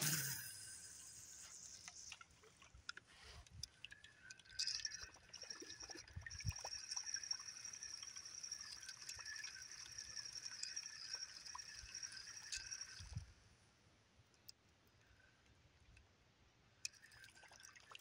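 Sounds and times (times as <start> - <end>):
fishing reel whirring: 0.0 - 2.5, 4.1 - 13.5.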